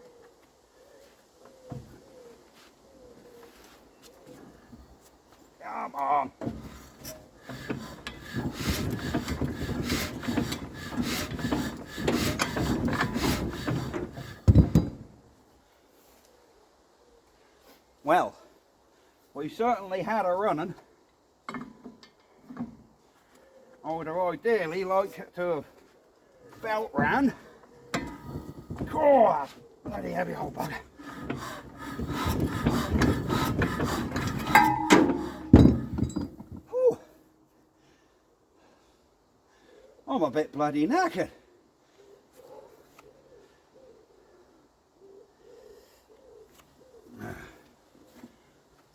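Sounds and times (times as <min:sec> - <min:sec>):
engine hand crank rasping: 0:06.4 - 0:15.1, 0:27.9 - 0:29.0, 0:29.9 - 0:36.7
man exhaling whew: 0:47.1 - 0:47.7.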